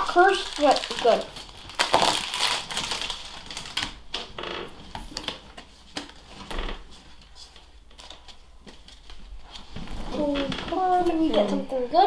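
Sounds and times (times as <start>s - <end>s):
foil wrapper rustling: 0.0s - 4.1s.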